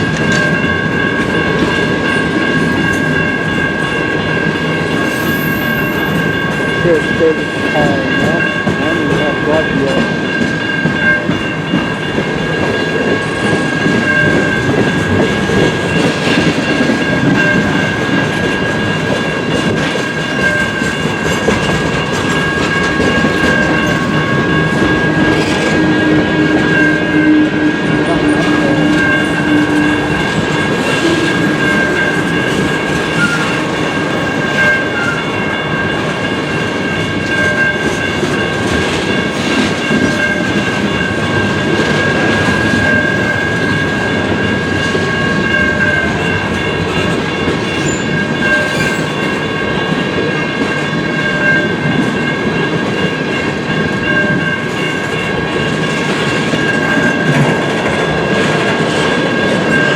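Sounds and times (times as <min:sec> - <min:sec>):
train wheels clacking on rails: 0:00.0 - 0:59.9
high-pitched ringing tone: 0:22.0 - 0:36.0.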